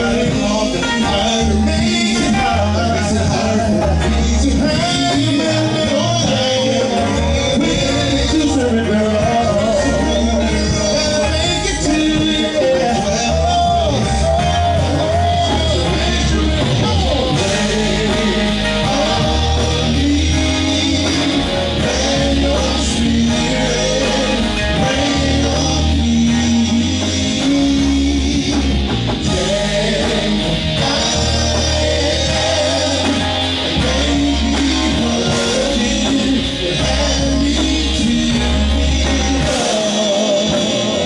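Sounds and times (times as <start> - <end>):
bass line: 0.0 - 41.0
guitar: 0.0 - 41.0
lead vocal singing: 0.0 - 41.0.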